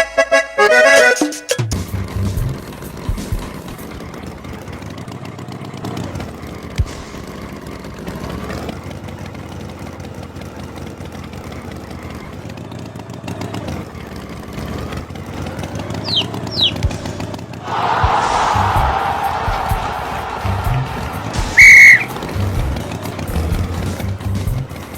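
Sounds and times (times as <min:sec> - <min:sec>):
cartoon tractor engine running: 0:00.0 - 0:24.9
quick falling chirps: 0:15.9 - 0:17.1, 0:21.5 - 0:22.5
loud rushing noise: 0:17.6 - 0:22.4.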